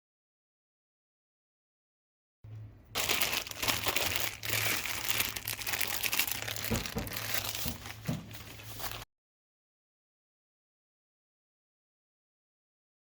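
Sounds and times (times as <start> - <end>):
plastic packaging crinkling: 2.9 - 9.1.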